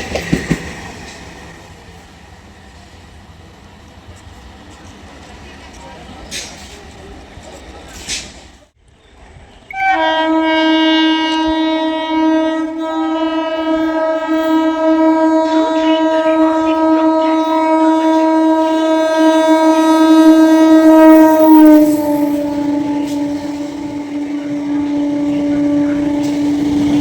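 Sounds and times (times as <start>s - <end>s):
train horn blast: 9.7s - 27.0s.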